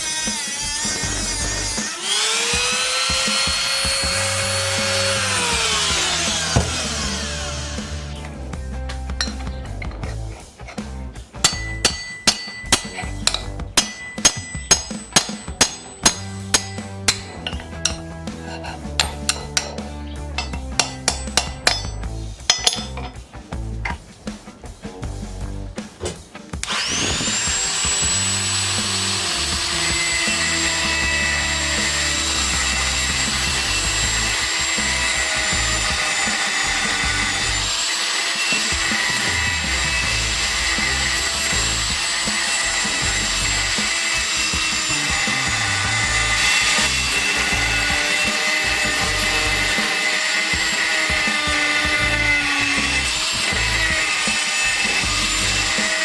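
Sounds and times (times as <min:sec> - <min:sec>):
power tool motor whining: 0:00.0 - 0:08.4, 0:26.6 - 0:56.0.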